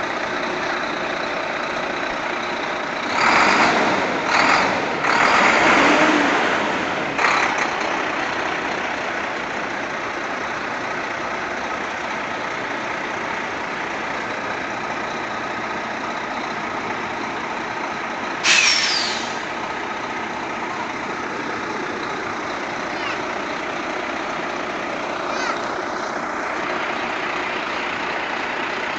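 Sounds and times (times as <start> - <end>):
truck engine running: 0.0 - 28.9
air hiss with falling whistle: 18.4 - 19.4.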